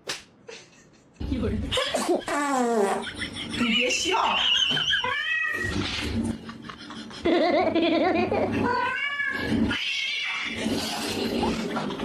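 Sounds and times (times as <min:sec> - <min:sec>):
cat yowling and meowing: 0:05.0 - 0:05.8, 0:08.6 - 0:10.6.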